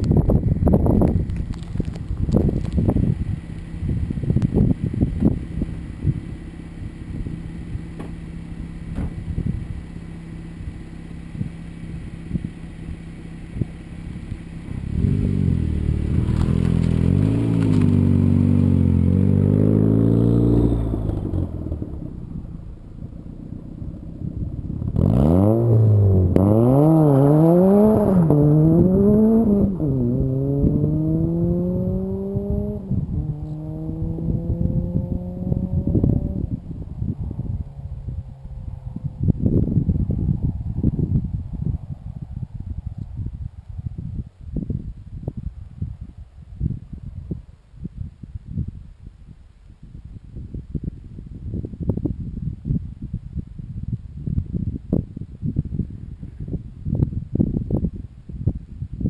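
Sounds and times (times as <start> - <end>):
car engine idling and revving: 0.0 - 41.9
car accelerating through gears: 24.9 - 36.5.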